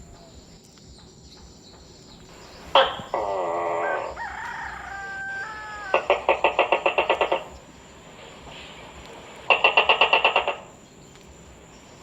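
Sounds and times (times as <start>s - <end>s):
rooster crowing: 2.4s - 7.6s.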